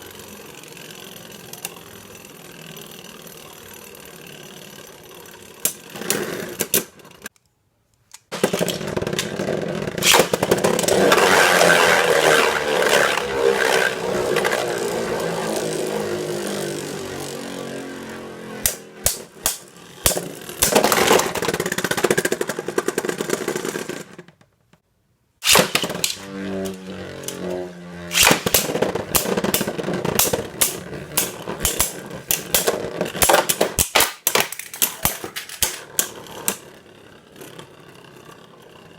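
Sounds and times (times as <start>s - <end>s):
spinning tops whirring: 0.0s - 7.3s, 8.3s - 24.2s, 25.4s - 38.9s
plastic tops clacking: 8.2s - 15.4s, 25.4s - 27.4s, 28.1s - 36.6s.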